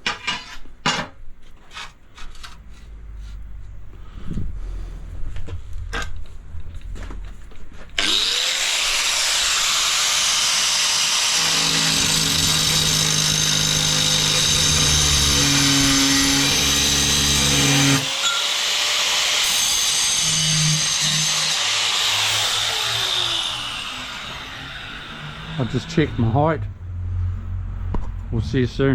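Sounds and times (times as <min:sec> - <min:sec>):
drill mixer stirring adhesive: 0:08.0 - 0:26.4.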